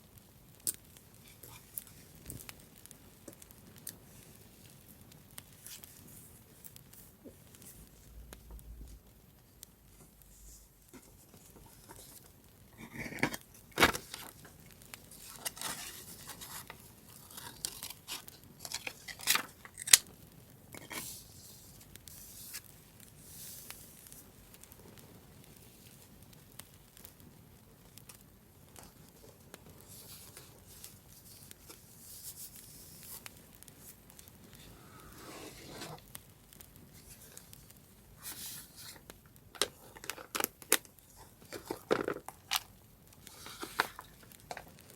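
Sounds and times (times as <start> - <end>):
paper rustling: 15.1 - 20.0, 43.3 - 44.7.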